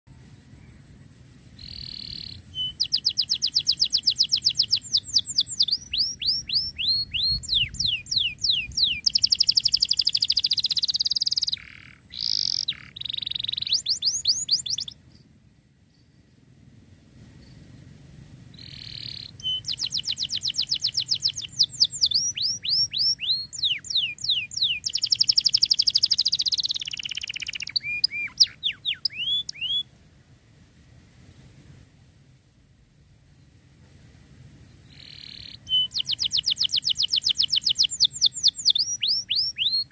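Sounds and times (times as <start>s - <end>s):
canary singing trills: 1.6s - 15.0s, 18.6s - 29.9s, 34.9s - 39.9s.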